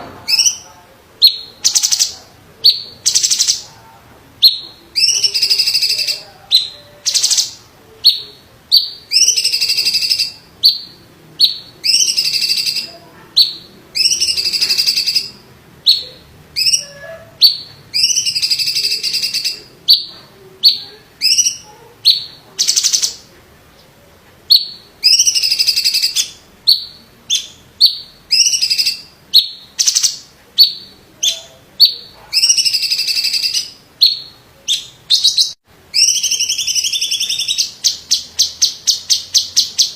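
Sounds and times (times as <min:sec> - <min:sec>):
bird singing harsh rattling phrases: 0:00.3 - 0:03.7, 0:04.4 - 0:23.3, 0:24.5 - 0:39.9.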